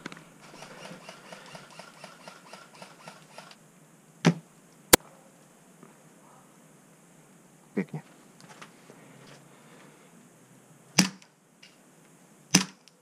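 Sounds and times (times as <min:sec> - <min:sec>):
sharp crack: 0:11.0 - 0:11.8, 0:12.5 - 0:13.0.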